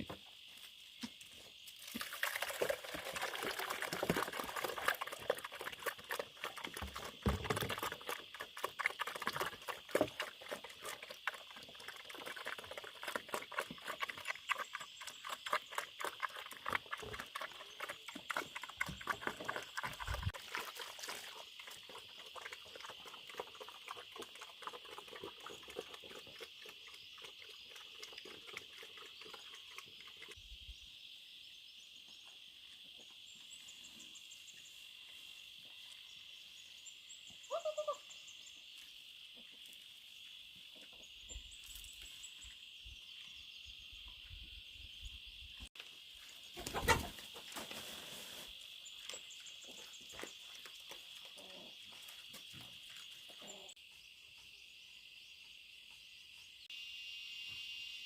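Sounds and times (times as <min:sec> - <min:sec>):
high insect drone: 0:50.7 - 0:58.0.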